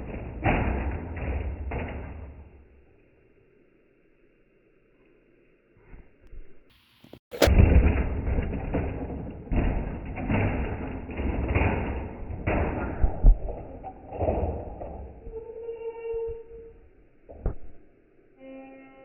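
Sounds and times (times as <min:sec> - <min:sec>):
heavy thumps and crashing hits: 0:00.0 - 0:02.7, 0:07.3 - 0:15.4
truck engine rumbling: 0:00.0 - 0:03.0.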